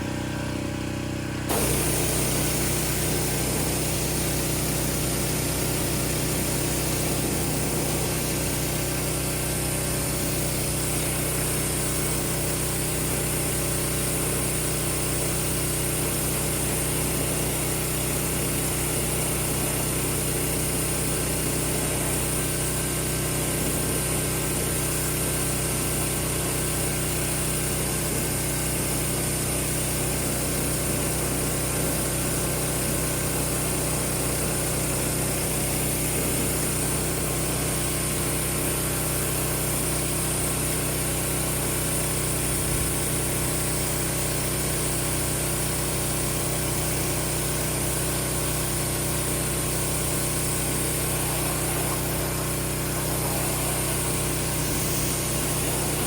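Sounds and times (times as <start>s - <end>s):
pressure washer running: 0.0s - 56.0s
water spraying hiss: 1.5s - 28.7s, 29.6s - 56.0s.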